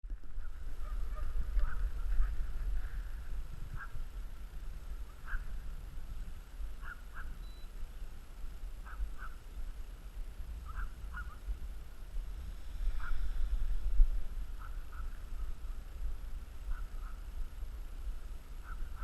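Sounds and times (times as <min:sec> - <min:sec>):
wind rumble on microphone: 0:00.0 - 0:19.0
honking bird calls: 0:05.1 - 0:05.6, 0:06.8 - 0:07.7, 0:08.8 - 0:09.4, 0:10.6 - 0:11.4, 0:12.9 - 0:13.4, 0:16.6 - 0:17.3, 0:18.6 - 0:19.0.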